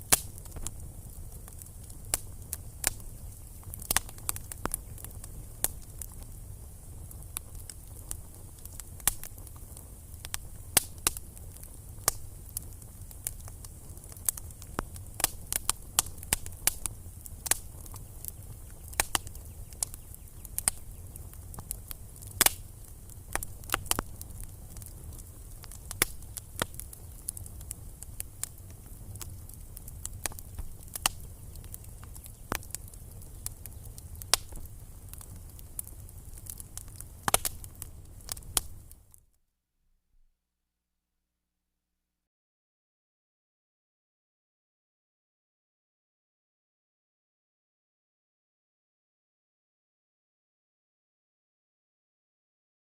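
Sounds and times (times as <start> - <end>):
wood fire crackling and popping: 0.0 - 39.2.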